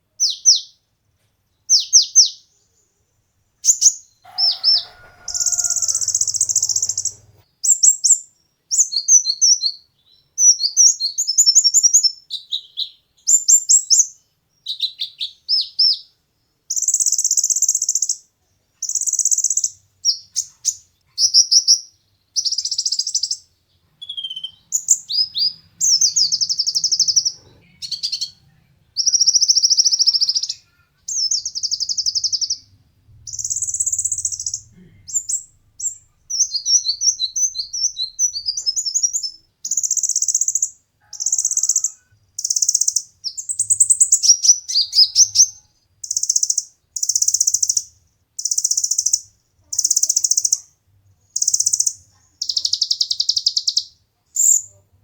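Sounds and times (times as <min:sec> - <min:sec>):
bird singing high trilled phrases: 0:03.6 - 0:16.1, 0:24.0 - 0:28.4, 0:29.0 - 0:32.7, 0:33.3 - 0:50.7, 0:51.4 - 0:54.7.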